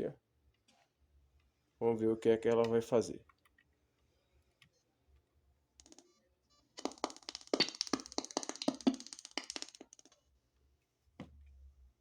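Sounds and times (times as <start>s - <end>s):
speaker clicking and knocking: 6.8s - 10.2s.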